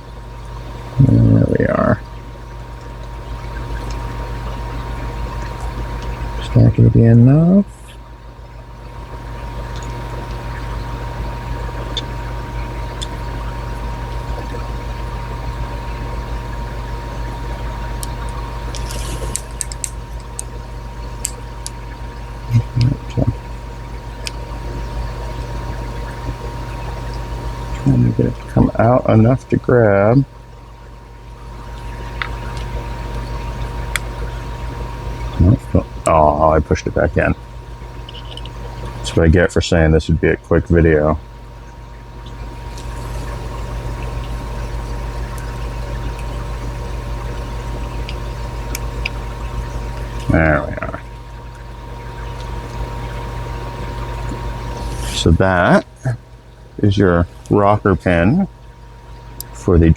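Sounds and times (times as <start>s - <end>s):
steady low hum: 0.0s - 59.9s
thin steady tone: 5.3s - 8.1s, 24.2s - 30.3s, 35.3s - 41.2s, 52.0s - 56.2s, 56.8s - 58.6s
dull low thumps: 22.4s - 23.4s
faint small ticks: 38.0s - 39.0s.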